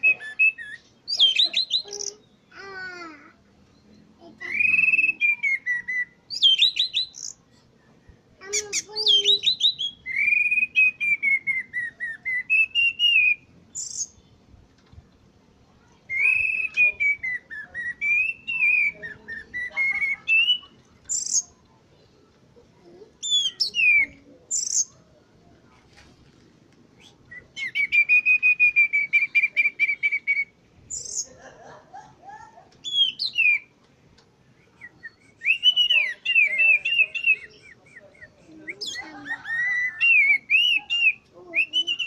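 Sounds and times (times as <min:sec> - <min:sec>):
thrush singing warbled whistles: 0:04.4 - 0:07.4, 0:09.2 - 0:14.2, 0:16.1 - 0:21.4, 0:27.0 - 0:31.2, 0:34.6 - 0:42.0.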